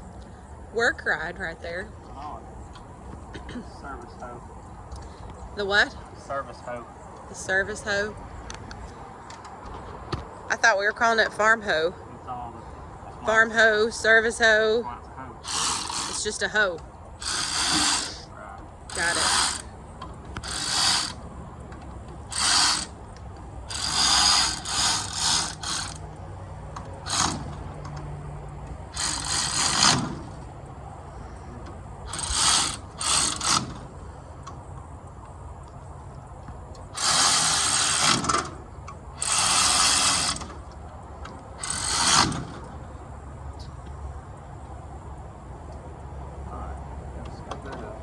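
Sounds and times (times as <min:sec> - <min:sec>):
ratchet wrench clicking: 0:15.4 - 0:16.4, 0:17.2 - 0:18.2, 0:18.9 - 0:19.7, 0:20.4 - 0:21.2, 0:22.3 - 0:23.0, 0:23.7 - 0:26.0, 0:27.0 - 0:27.6, 0:28.9 - 0:30.2, 0:32.1 - 0:33.8, 0:37.0 - 0:38.5, 0:39.2 - 0:40.5, 0:41.6 - 0:42.4.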